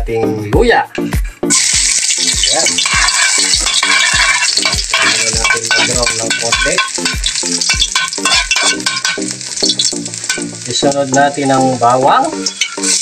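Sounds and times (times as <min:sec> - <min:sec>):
steady low thumping beat: 0:00.0 - 0:09.4
ginger sizzling in hot oil: 0:01.5 - 0:13.0
metal ladle stirring in wok: 0:01.6 - 0:10.6, 0:12.4 - 0:13.0.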